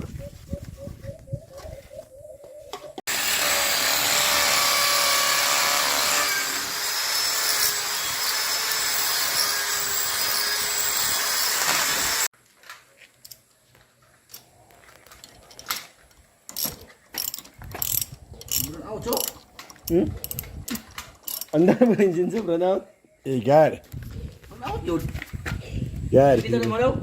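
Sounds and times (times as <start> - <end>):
electric drill whining: 3.1 - 12.3.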